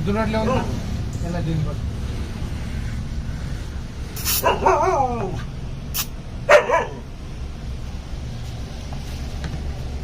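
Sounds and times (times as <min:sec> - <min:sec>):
puppy yapping: 0:04.3 - 0:05.4, 0:06.5 - 0:07.1.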